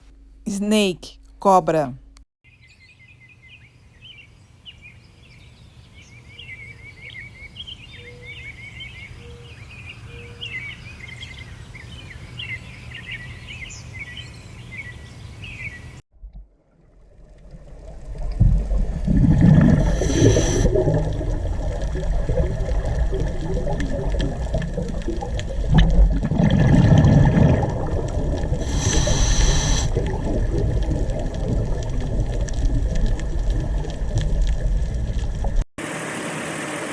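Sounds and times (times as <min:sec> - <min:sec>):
low steady hum: 0:00.0 - 0:02.2
small birds chirping: 0:02.5 - 0:16.0
brief hissing bursts: 0:19.9 - 0:20.7, 0:28.7 - 0:29.9.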